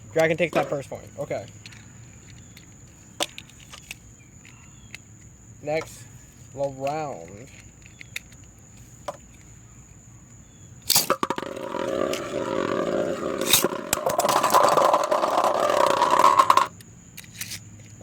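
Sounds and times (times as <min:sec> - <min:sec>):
spinning tops launched with a snap: 0:10.9 - 0:11.8
spinning tops clashing and whirring: 0:10.9 - 0:16.7.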